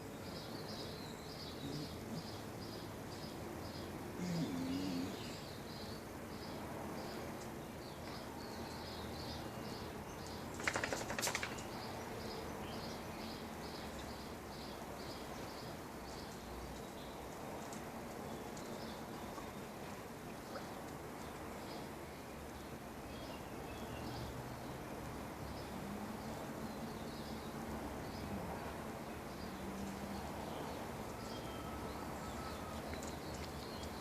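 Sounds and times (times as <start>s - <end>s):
clatter of clicks: 10.5s - 11.7s.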